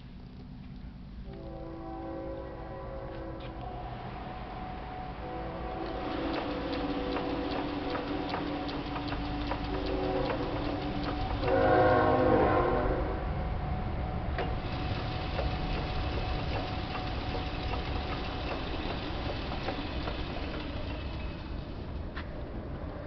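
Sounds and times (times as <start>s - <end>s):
multi-pitched whine: 0.0s - 23.0s
lathe motor humming: 3.7s - 12.8s, 14.2s - 22.3s
light ticking: 5.7s - 11.9s, 14.3s - 22.0s.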